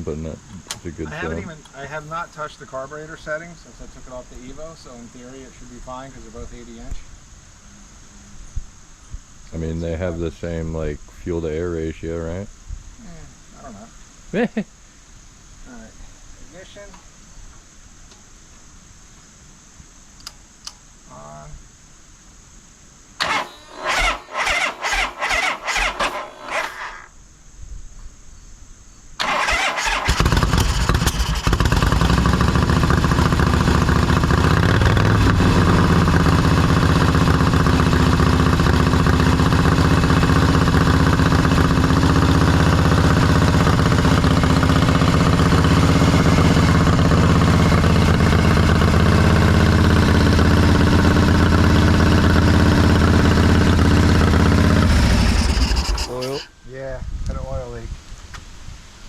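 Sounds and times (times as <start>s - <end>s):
motorcycle engine cranking: 23.2s - 27.1s, 29.2s - 56.5s
motorcycle engine running: 29.2s - 56.4s.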